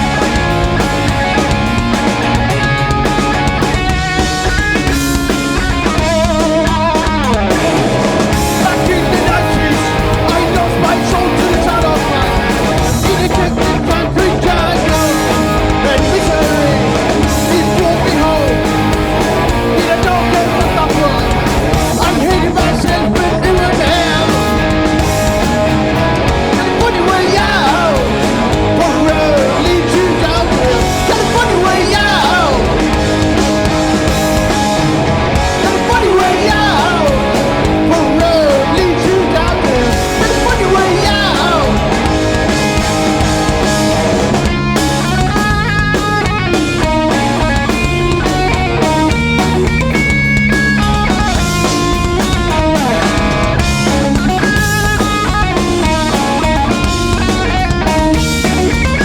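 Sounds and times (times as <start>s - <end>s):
bass guitar: 0.0s - 59.0s
distorted guitars: 0.0s - 59.0s
drums: 0.0s - 59.0s
sung vocals: 5.9s - 43.8s.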